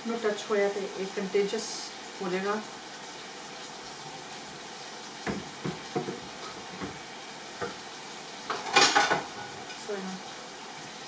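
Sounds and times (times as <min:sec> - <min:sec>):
food sizzling in a frying pan: 0:00.0 - 0:11.0
metal ladle knocking on pan: 0:05.2 - 0:07.0.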